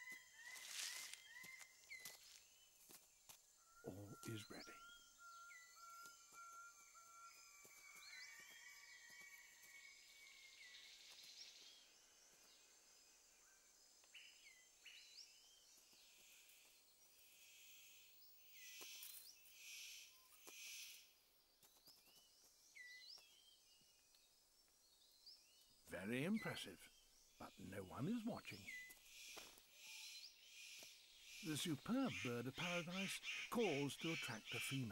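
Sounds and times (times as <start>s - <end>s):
high insect hiss: 0.5s - 3.6s, 6.1s - 21.2s.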